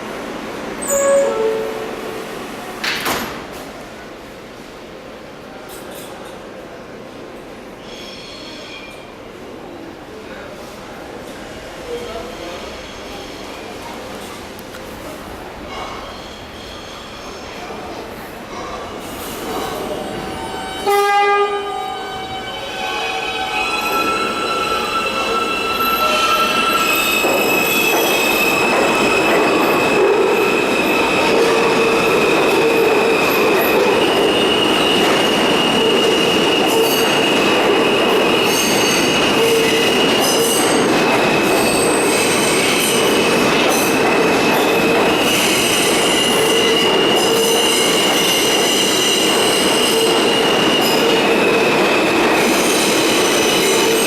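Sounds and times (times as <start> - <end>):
train rolling on rails: 0.0 - 54.0
train wheels squealing: 7.8 - 9.2, 11.9 - 13.8, 15.7 - 17.6, 21.8 - 54.0.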